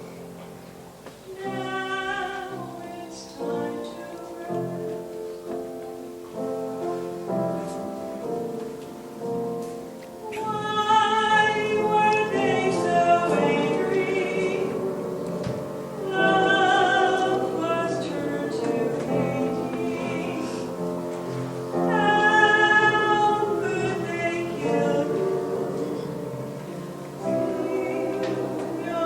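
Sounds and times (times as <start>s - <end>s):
instrumental accompaniment: 0.0s - 29.0s
choir singing sustained notes: 10.2s - 29.0s.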